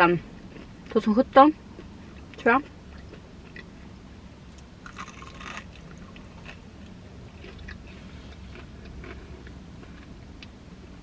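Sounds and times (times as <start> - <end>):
low steady hum: 0.0 - 11.0
crackle of biting fried chicken: 4.9 - 6.6.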